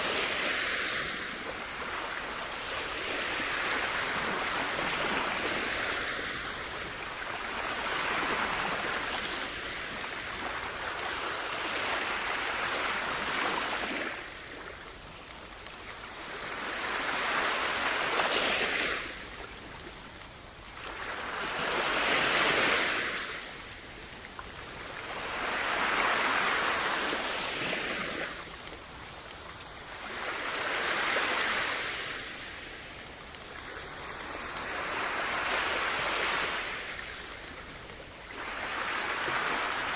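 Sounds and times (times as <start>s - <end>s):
sea waves washing onto beach: 0.0s - 39.9s.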